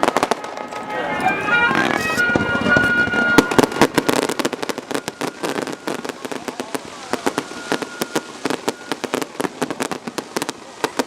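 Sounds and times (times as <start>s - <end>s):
fireworks popping and crackling: 0.0s - 11.0s.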